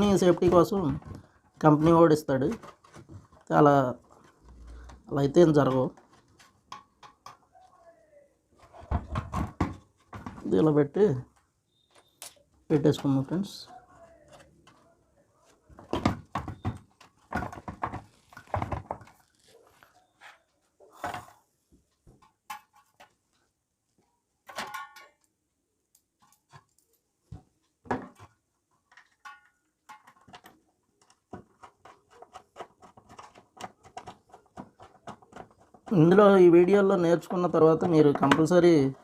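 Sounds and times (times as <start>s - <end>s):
hands fitting parts into casing: 25.9s - 36.2s.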